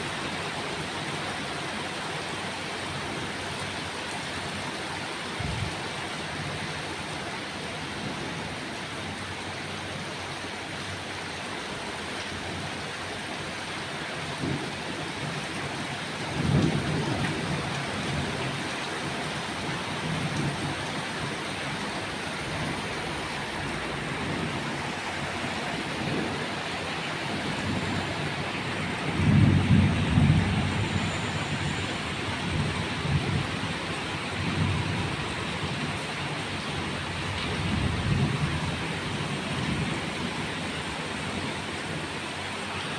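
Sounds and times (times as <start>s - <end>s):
rain hissing: 15.6s - 42.9s.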